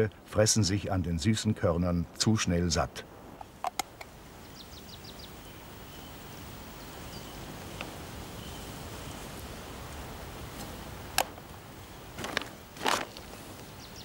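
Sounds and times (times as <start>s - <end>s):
outdoor ambience: 0.0s - 14.0s
sharp clicks: 3.4s - 4.1s
bird calling: 4.0s - 9.3s.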